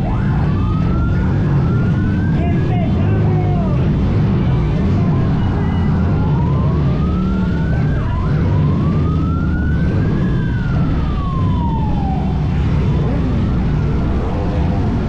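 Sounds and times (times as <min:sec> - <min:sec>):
siren wailing: 0:00.0 - 0:15.0.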